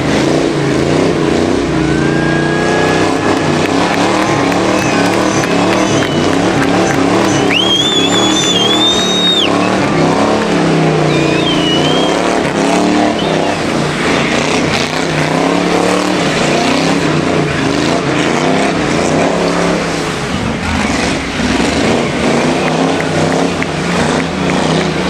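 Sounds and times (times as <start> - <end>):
engine revving hard: 0.0 - 25.0
tyre squeal: 4.0 - 9.8, 11.0 - 12.4.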